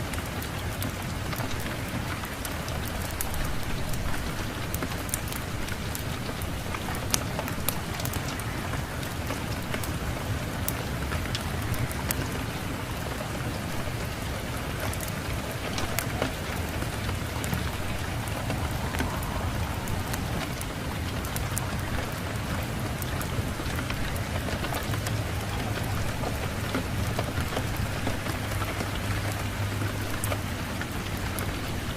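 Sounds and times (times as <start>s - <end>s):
steady rain hiss: 0.0s - 31.9s
wood fire crackling: 0.0s - 31.9s
low rumble: 15.3s - 27.4s.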